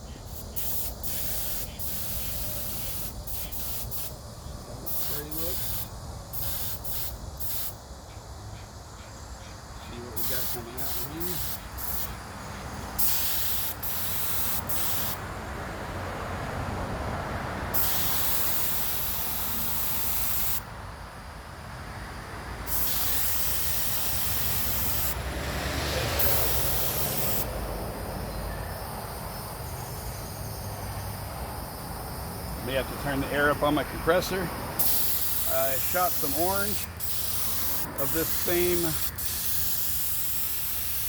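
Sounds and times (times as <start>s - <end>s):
paint spray gun hissing: 0.0s - 7.8s, 10.0s - 12.3s, 13.0s - 15.2s, 17.8s - 20.7s, 22.7s - 25.2s, 26.2s - 27.5s, 33.4s - 41.0s.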